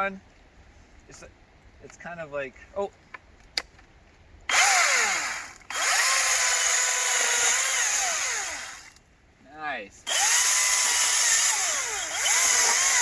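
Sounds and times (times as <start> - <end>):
battery chainsaw whining: 4.5 - 9.0, 10.1 - 13.0.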